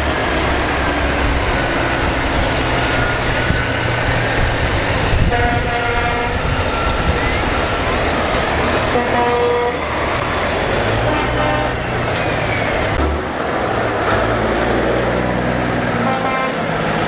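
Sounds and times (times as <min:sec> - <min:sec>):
truck diesel engines: 0:00.0 - 0:17.0
truck air horn blasts: 0:05.2 - 0:07.4, 0:08.8 - 0:10.0, 0:10.9 - 0:12.0, 0:16.0 - 0:16.8.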